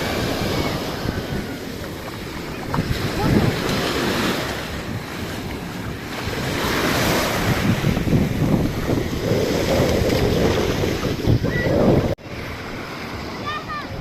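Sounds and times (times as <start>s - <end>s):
sea waves washing onto shore: 0.0s - 14.0s
wind buffeting microphone: 0.0s - 14.0s.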